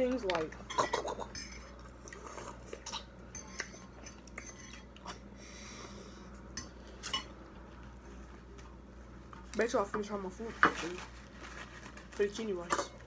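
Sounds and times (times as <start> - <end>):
chewing: 0.5 - 5.2.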